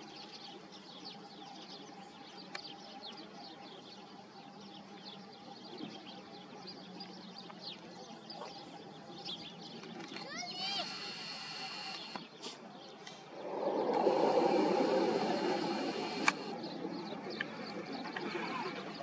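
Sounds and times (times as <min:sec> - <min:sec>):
small birds chirping: 0:00.0 - 0:19.0
faint steady hum: 0:10.6 - 0:18.1.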